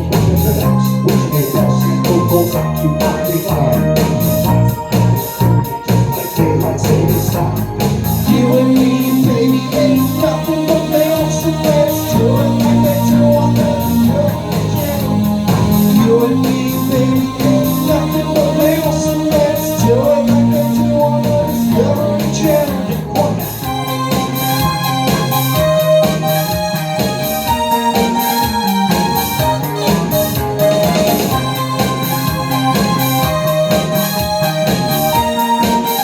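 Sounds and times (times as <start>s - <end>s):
bass guitar: 0.0s - 36.0s
electric guitar: 0.0s - 36.0s
person singing: 0.0s - 36.0s.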